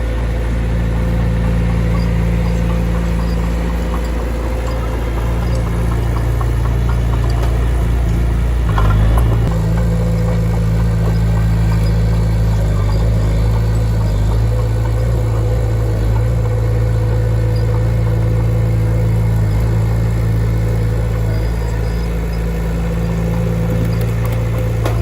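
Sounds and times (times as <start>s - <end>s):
heavy machine engine running: 0.0s - 25.0s.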